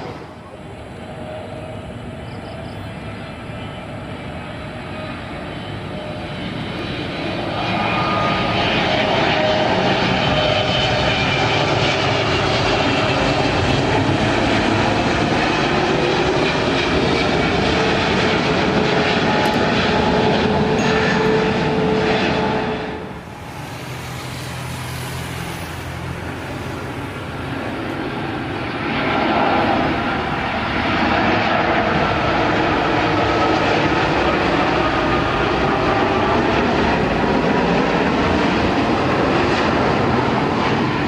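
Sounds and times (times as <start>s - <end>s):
jet engines passing: 0.0s - 41.0s
whining engine tones: 0.0s - 41.0s.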